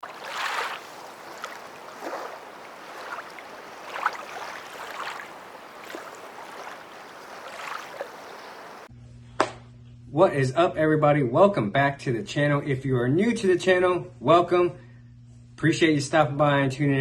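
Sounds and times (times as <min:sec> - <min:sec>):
water lapping and splashing: 0:00.0 - 0:08.9.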